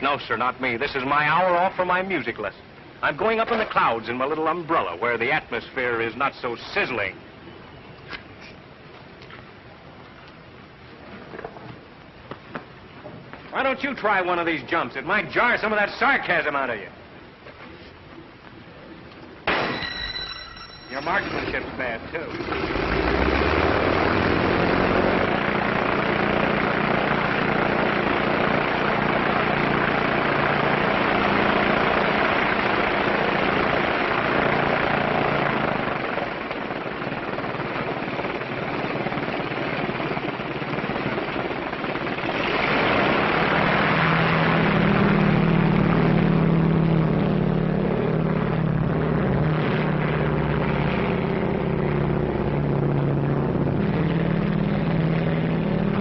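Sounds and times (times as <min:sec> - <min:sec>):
propeller airplane engine: 0:21.4 - 0:56.0.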